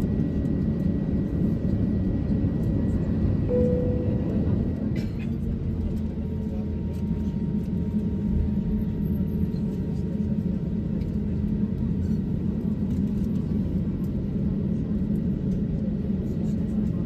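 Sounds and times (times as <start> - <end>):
airplane cabin rumble: 0.0 - 17.0
faint steady tones: 3.5 - 4.9.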